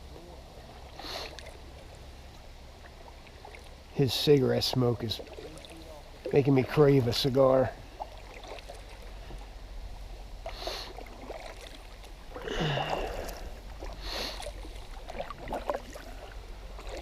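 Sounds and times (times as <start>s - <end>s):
kayak paddle splashing: 0.1s - 17.0s
steady low rumble: 5.9s - 17.0s.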